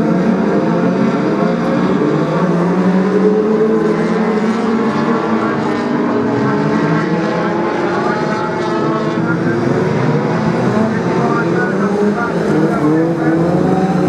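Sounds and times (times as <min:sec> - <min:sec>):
racing car engines: 0:00.0 - 0:14.0.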